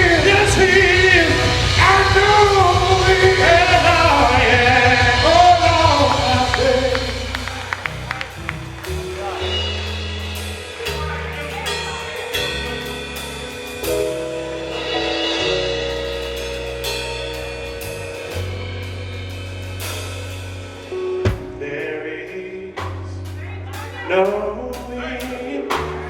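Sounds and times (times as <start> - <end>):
bass notes: 0.0 - 26.0
drum kit with cymbals: 0.0 - 26.0
held keyboard chords: 0.0 - 26.0
sharp drum hit: 21.2 - 22.0.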